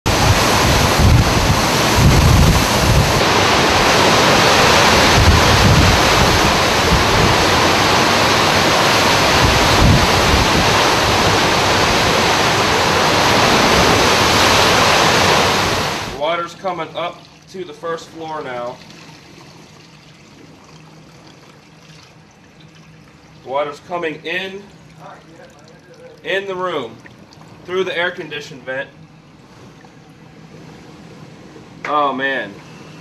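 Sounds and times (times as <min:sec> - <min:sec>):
wind buffeting microphone: 0:00.1 - 0:14.3
roaring storm wind: 0:00.1 - 0:16.2
storm surge water roaring: 0:00.1 - 0:31.8.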